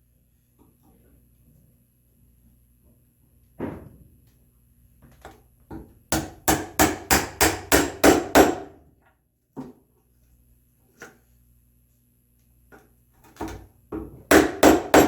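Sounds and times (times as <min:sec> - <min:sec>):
mallet striking a chisel: 0:06.1 - 0:08.7, 0:14.3 - 0:15.0.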